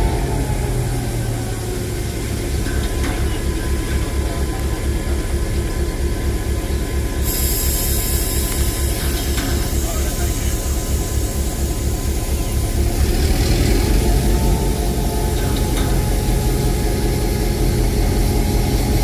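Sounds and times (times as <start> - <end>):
diesel locomotive engine throbbing: 0.0 - 19.0
high hiss: 7.2 - 12.6.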